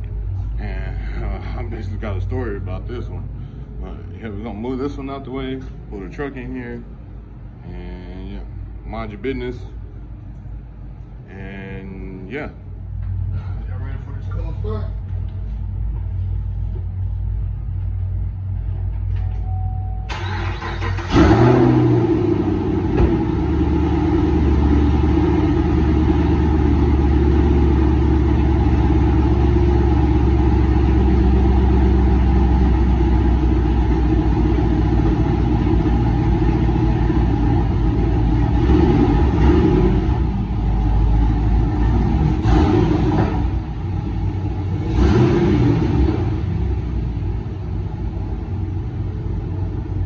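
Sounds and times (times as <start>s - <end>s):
engine revving: 20.1s - 47.5s
pickup truck engine idling: 20.1s - 50.0s.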